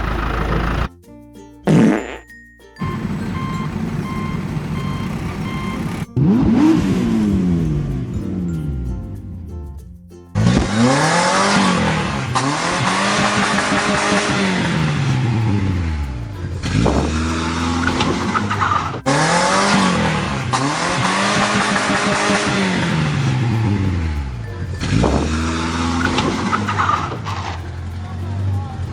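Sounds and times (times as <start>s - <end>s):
car engine revving: 0.0s - 0.9s, 2.8s - 9.2s, 10.4s - 28.9s
tyres screeching: 0.0s - 0.9s, 2.8s - 6.1s.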